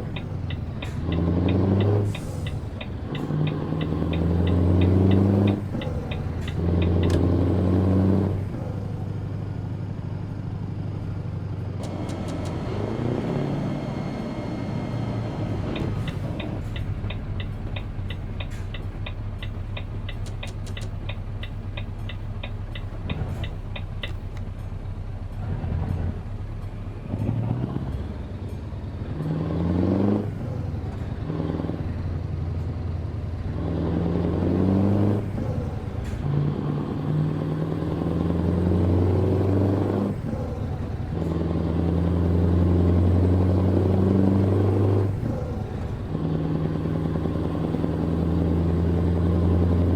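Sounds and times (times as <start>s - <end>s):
turn-signal relay ticking: 0.0s - 7.2s, 15.7s - 24.4s
truck diesel engine: 0.0s - 49.9s.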